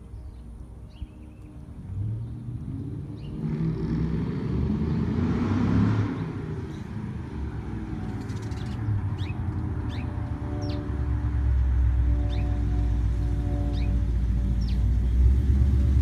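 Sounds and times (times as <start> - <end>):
bird chirps: 8.2 - 10.9.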